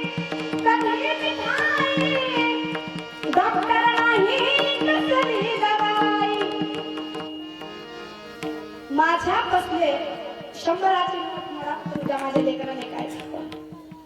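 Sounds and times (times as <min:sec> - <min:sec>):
hand drum strokes: 0:09.2 - 0:14.0.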